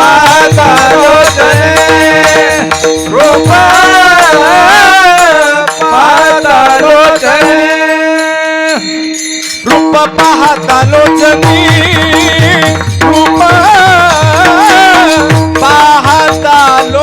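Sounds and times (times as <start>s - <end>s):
man singing wordless melody: 0.0s - 17.0s
drum strokes: 9.5s - 16.9s.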